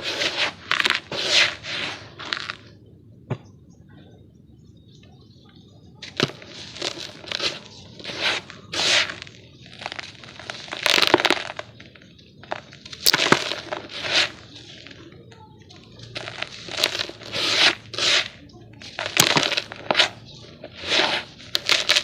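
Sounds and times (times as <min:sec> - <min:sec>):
dry dirt crunching: 0:06.0 - 0:22.0.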